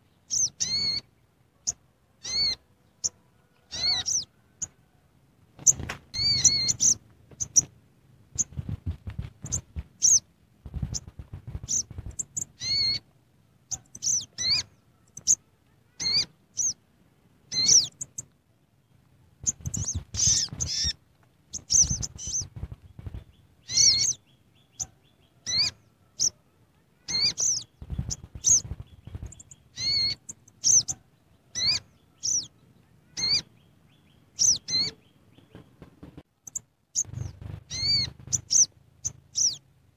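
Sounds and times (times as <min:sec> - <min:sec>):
bird chirping: 0:00.0 - 0:04.9, 0:05.6 - 0:07.7, 0:08.3 - 0:16.8, 0:17.4 - 0:39.7
soft low knocks or rustling: 0:37.0 - 0:38.6.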